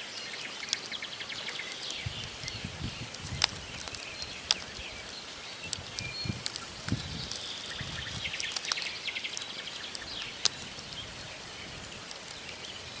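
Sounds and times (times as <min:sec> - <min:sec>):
small birds chirping: 0:00.0 - 0:13.0
campfire crackling and popping: 0:00.5 - 0:13.0.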